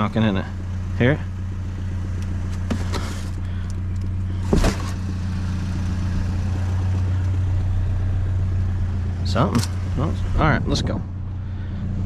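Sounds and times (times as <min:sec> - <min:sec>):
truck engine idling with knock: 0:01.6 - 0:07.8.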